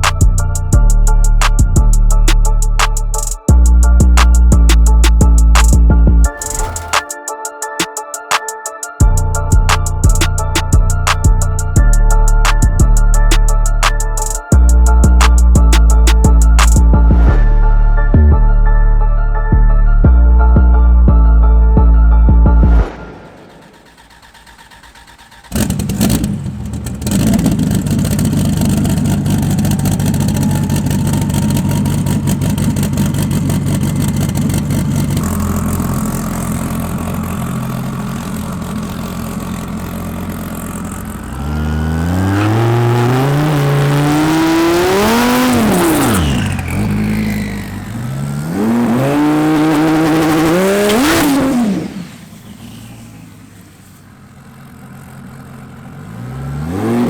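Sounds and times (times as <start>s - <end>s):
car engine accelerating: 21.9s - 57.0s.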